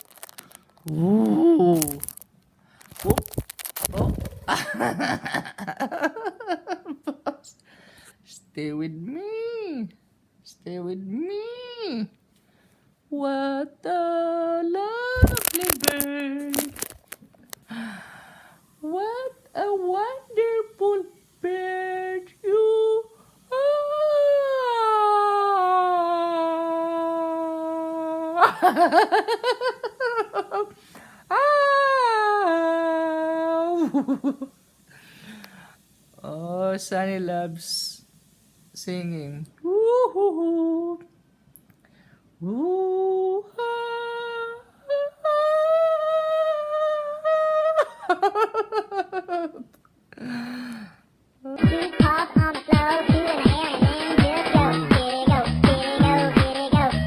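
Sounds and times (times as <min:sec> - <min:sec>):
person singing warbling woo notes: 0:00.9 - 0:02.1, 0:13.2 - 0:16.9, 0:51.5 - 0:57.0
woman's laugh-like vocal run: 0:03.1 - 0:07.4, 0:15.2 - 0:15.6, 0:28.4 - 0:30.7.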